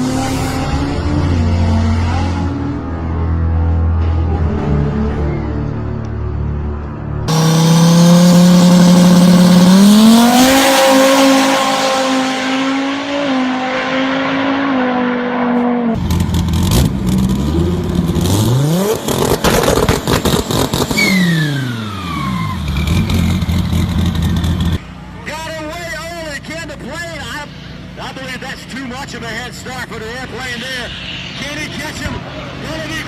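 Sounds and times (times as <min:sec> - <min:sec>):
sports car engine revving hard: 0:07.3 - 0:24.1.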